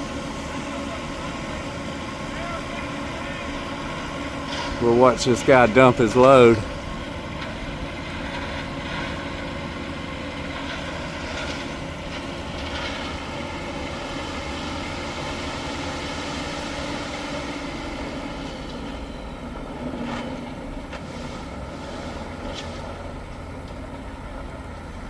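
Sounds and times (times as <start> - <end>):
gravel dumping: 0.0 - 25.0
truck engine droning: 0.0 - 25.0.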